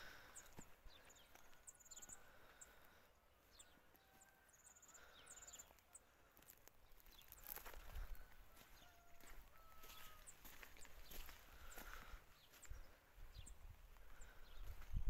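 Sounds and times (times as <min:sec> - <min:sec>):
songbirds chirping and trilling: 0:00.0 - 0:15.0.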